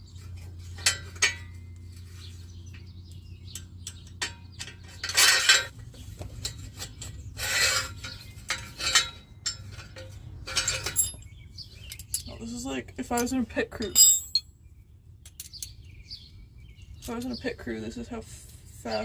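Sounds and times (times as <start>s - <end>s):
metal scraping and rattling: 0.0s - 14.5s
metal tools clinking: 0.2s - 2.0s, 3.4s - 14.5s.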